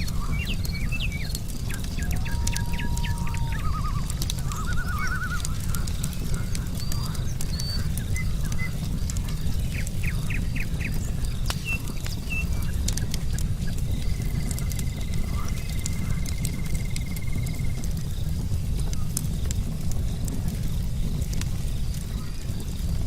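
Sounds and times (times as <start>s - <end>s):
birds chirping: 0.0s - 23.0s
wood fire crackling: 0.0s - 23.0s.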